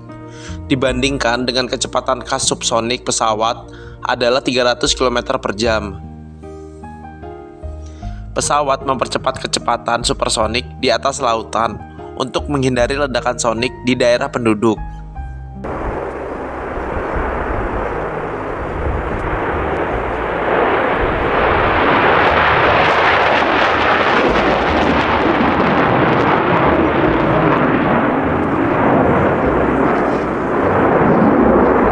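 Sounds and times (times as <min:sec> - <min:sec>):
jet engine roar: 0:15.6 - 0:31.9.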